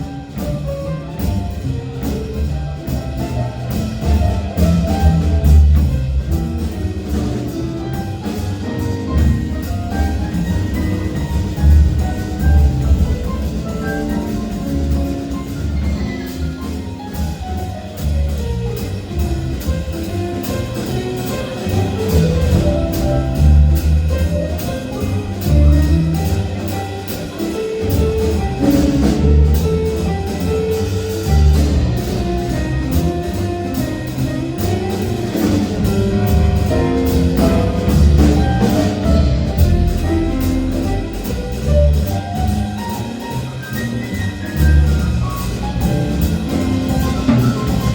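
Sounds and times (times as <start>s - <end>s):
band playing instrumental: 0.0s - 47.9s.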